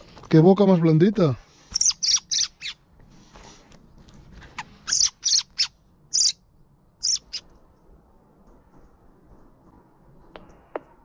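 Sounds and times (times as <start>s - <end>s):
bird chirping: 1.7s - 2.8s, 4.6s - 6.4s, 7.0s - 7.5s.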